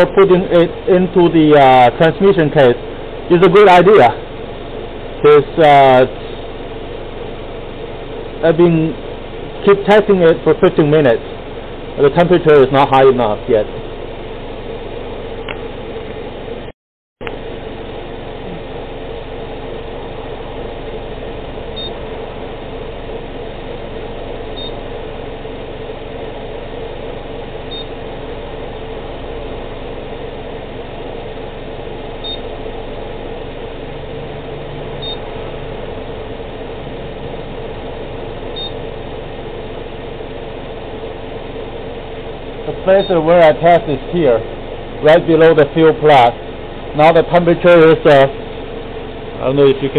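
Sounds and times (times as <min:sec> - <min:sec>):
car engine idling: 0:00.0 - 0:49.9
short high beeps: 0:21.8 - 0:22.0, 0:24.6 - 0:24.8, 0:27.7 - 0:27.9, 0:32.2 - 0:32.5, 0:35.0 - 0:35.3, 0:38.6 - 0:38.8.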